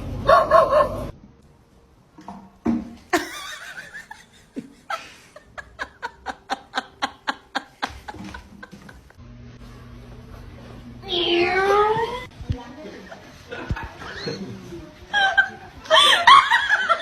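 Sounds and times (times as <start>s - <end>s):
person laughing: 3.2s - 9.2s.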